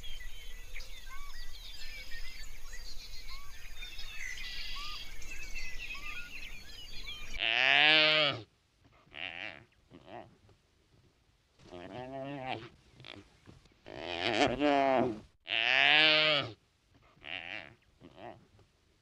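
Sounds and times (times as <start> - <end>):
small birds chirping: 0.0 - 7.5
wildebeest bellowing: 7.4 - 10.4, 11.6 - 13.3, 13.9 - 18.5.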